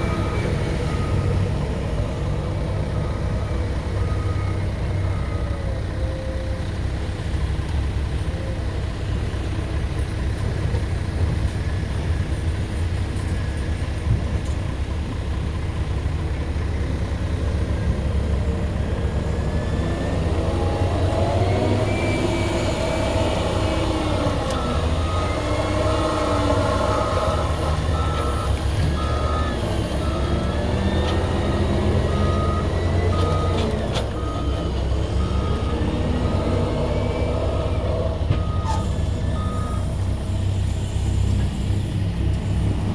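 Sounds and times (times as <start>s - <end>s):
reversing alarm beeping: 0.0s - 2.2s, 19.5s - 40.0s
engine whines: 0.0s - 7.3s, 16.4s - 42.9s
heavy diesel engine under load: 0.0s - 42.9s.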